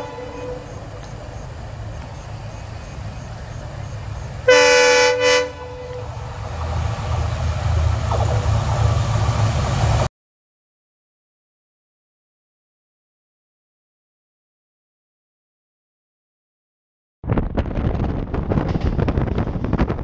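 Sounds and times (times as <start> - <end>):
train horn blast: 0.0 - 1.1, 4.4 - 6.3
low rumble of running train: 0.0 - 10.1, 17.2 - 20.0.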